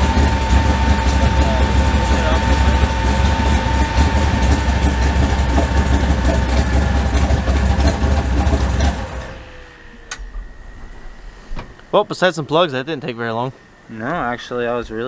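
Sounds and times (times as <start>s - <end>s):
truck engine idling loudly: 0.0s - 10.2s.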